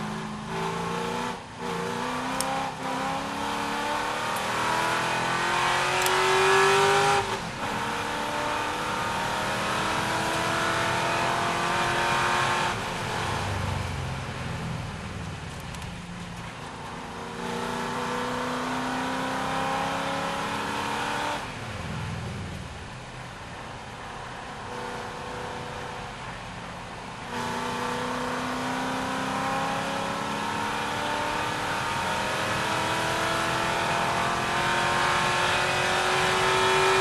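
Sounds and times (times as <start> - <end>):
racing car engine accelerating: 0.0 - 13.6, 17.3 - 21.4, 27.3 - 37.0.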